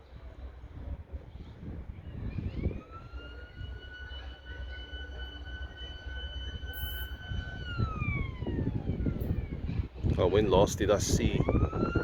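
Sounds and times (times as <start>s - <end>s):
train rumble: 0.0s - 12.0s
train horn: 3.0s - 7.2s.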